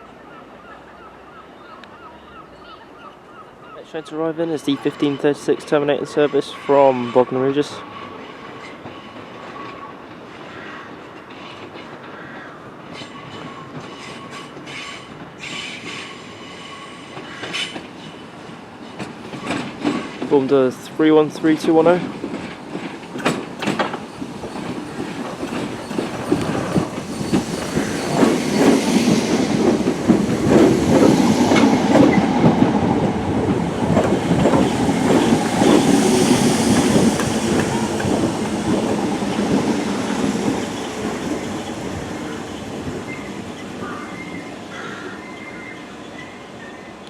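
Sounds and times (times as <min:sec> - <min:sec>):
electric train arriving: 0:12.8 - 0:47.0
wheels clattering over rail joints: 0:21.6 - 0:42.0.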